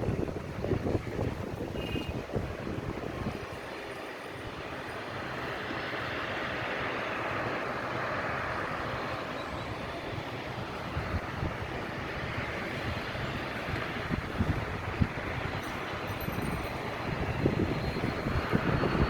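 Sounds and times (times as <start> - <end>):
wind buffeting microphone: 0.0 - 4.6, 9.6 - 19.0
jet airliner engines passing: 2.3 - 19.0.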